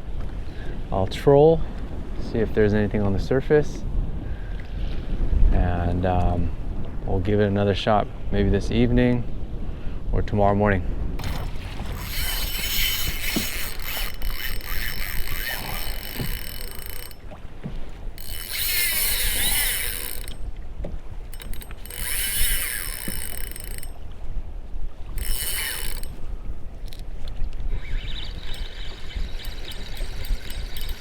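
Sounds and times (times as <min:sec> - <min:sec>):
fishing reel whirring: 0:11.2 - 0:24.1, 0:25.0 - 0:31.0.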